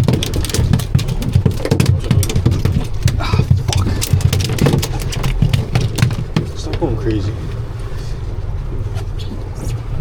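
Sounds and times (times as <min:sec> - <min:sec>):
boat motor rumbling: 0:00.0 - 0:10.0
wind: 0:00.0 - 0:10.0.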